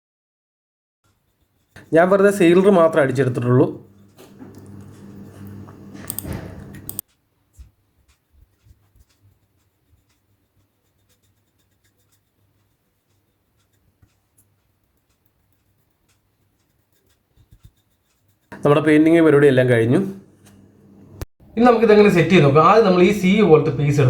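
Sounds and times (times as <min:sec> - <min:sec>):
brush strokes on wood: 0:01.1 - 0:14.6.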